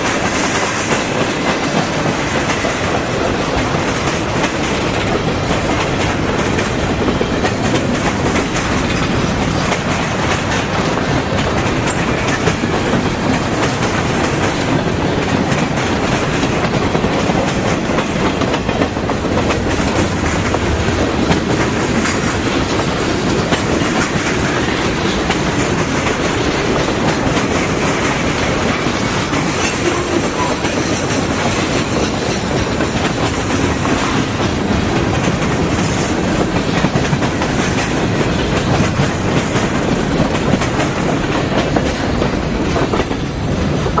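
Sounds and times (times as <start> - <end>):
freight train cars rolling: 0.0 - 44.0
wheels clicking over rail joints: 0.0 - 44.0.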